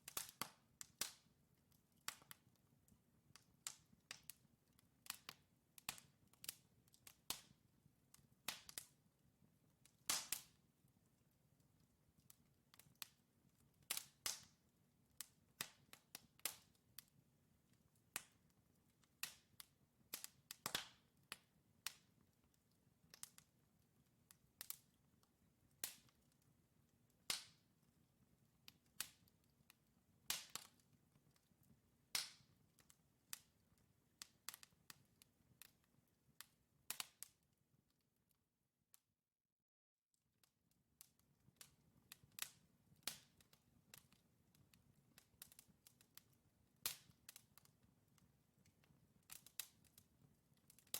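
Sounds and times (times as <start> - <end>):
fire crackling: 0.0 - 7.5, 9.8 - 10.6, 11.2 - 37.3, 41.0 - 50.9.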